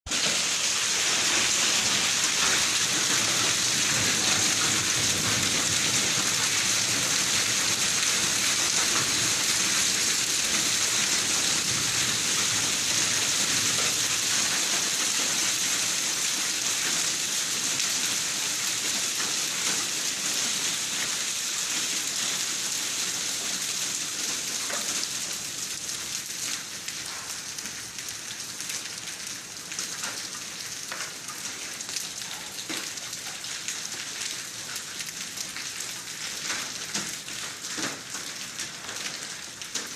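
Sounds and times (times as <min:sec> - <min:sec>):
steady rain falling: 0:00.1 - 0:39.9.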